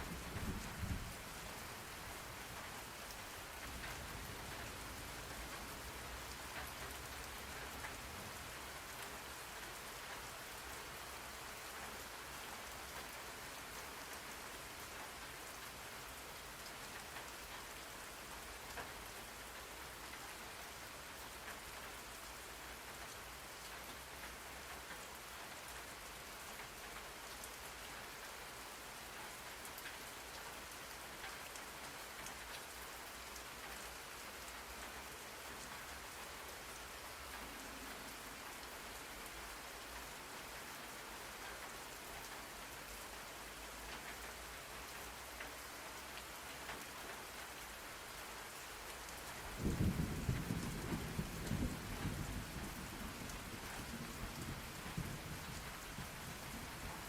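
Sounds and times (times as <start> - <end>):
patter of raindrops: 0.0 - 57.0
rain hiss: 0.0 - 57.0.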